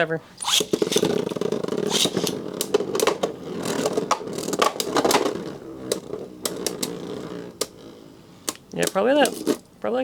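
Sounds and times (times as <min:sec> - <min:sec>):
spinning tops clacking: 0:00.4 - 0:07.8
spinning tops whirring and scraping: 0:00.4 - 0:09.7.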